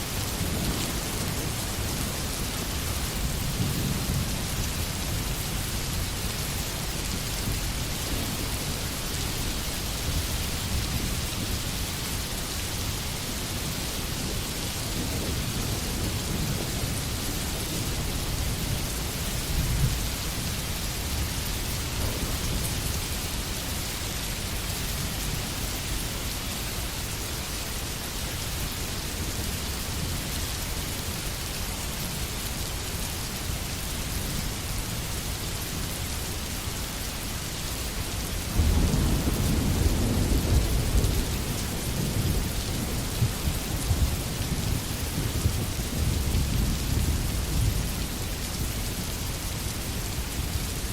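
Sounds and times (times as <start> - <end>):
steady rain in a forest: 0.0 - 50.9
thunder rumbling: 21.9 - 23.0, 38.5 - 48.0.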